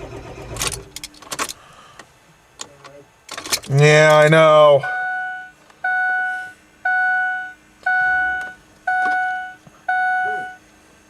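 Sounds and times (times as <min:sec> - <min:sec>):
dashboard warning chime: 0:04.8 - 0:10.7.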